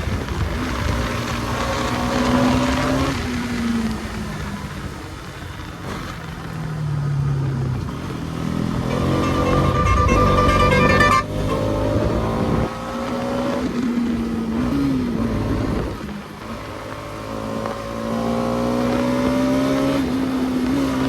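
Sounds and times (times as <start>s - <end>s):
motorcycle engine running: 6.0s - 14.4s.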